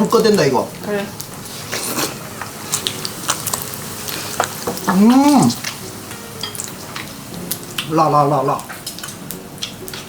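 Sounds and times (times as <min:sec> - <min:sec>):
meat sizzling on a grill: 0:00.0 - 0:10.0
person exclaiming: 0:04.9 - 0:05.6.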